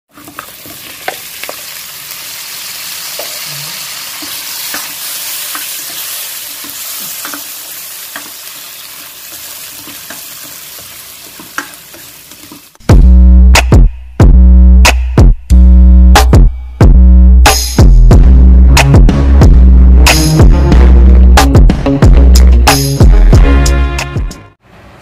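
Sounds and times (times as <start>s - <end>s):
shrimp sizzling in a pan: 0.1s - 12.8s.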